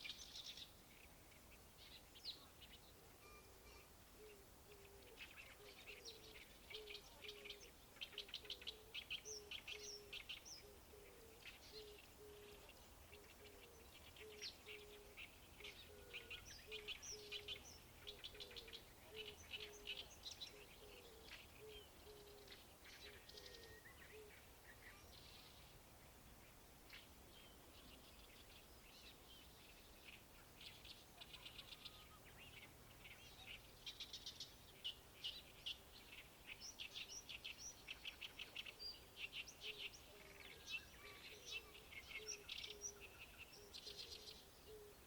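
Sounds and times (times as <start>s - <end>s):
birds chattering: 29.7s - 45.0s.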